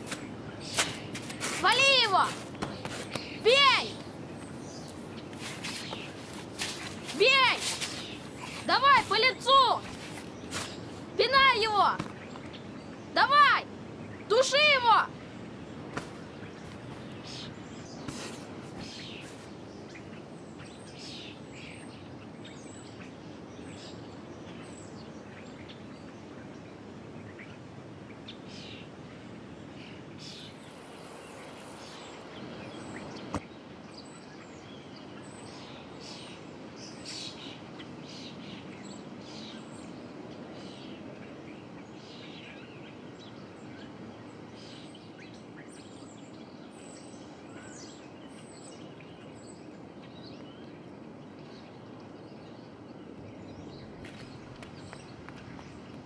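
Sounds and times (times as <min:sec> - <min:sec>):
background hiss: 0:00.0 - 0:13.0, 0:28.4 - 0:39.5
small birds chirping: 0:00.0 - 0:56.0.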